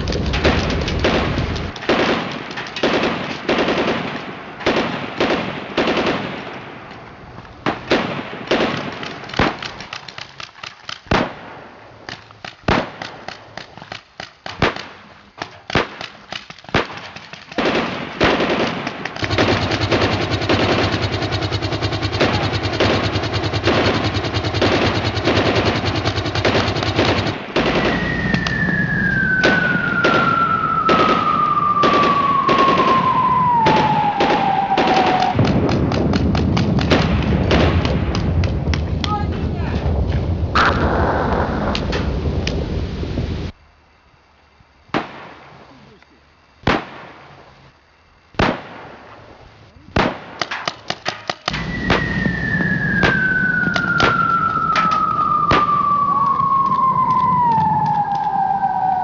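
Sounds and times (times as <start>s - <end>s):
steady low hum: 0.0s - 59.0s
rapid automatic rattle: 19.1s - 28.1s
falling whistle-like tone: 27.7s - 35.4s, 51.5s - 59.0s
sharp gunshot-like bangs: 29.4s - 38.4s, 44.9s - 45.6s, 46.6s - 47.4s, 48.3s - 49.1s, 50.0s - 52.3s.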